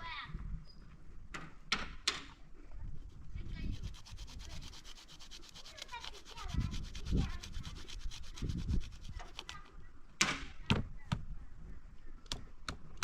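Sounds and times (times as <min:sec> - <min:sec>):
rapid scraping strokes: 0:02.9 - 0:09.6.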